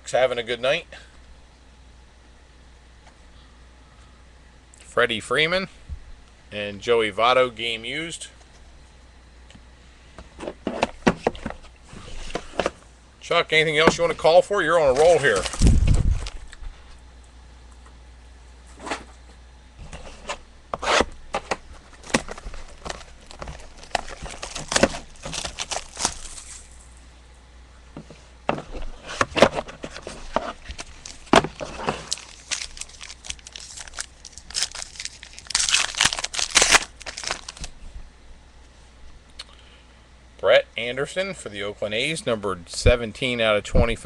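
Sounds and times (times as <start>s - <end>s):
card packs being torn open: 14.8s - 16.6s, 20.8s - 26.9s, 29.2s - 37.7s.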